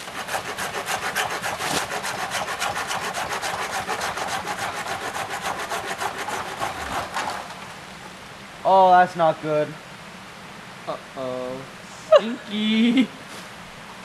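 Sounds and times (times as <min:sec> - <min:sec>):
hand saw cutting wood: 0:00.0 - 0:07.6.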